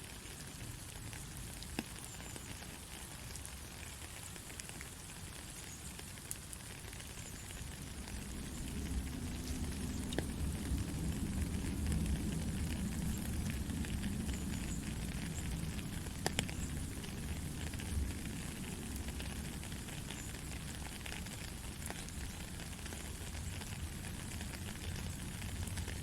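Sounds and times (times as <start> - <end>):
soft rain hiss: 0.0 - 26.0
low rumble: 7.8 - 14.5.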